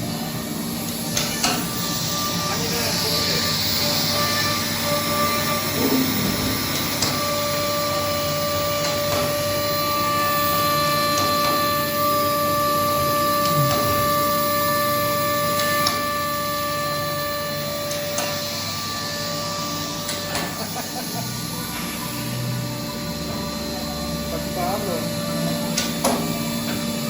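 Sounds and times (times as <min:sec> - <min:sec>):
milling machine whir: 0:00.0 - 0:27.0
high spindle whine: 0:00.1 - 0:27.0
drive pitch glides: 0:13.0 - 0:14.7.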